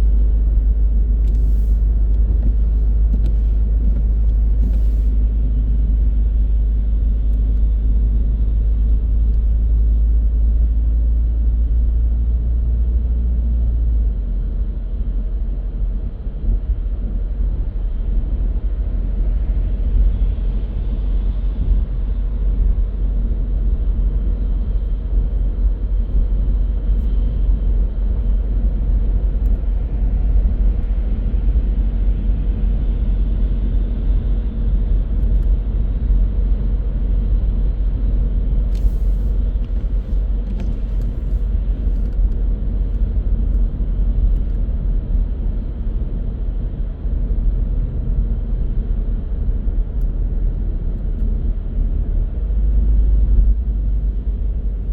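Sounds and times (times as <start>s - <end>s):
car engine and tyre rumble: 0.0s - 54.9s.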